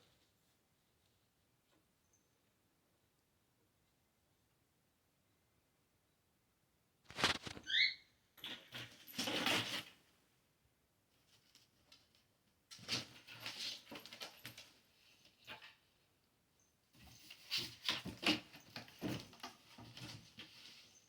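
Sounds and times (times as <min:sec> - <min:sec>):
kittens paws pattering and scuffling: 0:00.0 - 0:02.6, 0:07.1 - 0:10.1, 0:11.0 - 0:16.2, 0:16.9 - 0:21.0.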